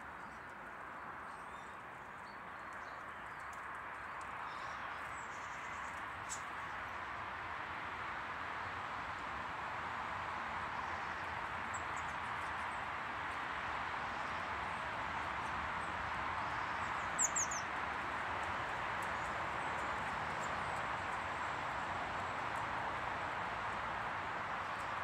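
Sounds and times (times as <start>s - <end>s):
small birds chirping: 1.3s - 6.7s, 16.5s - 17.7s.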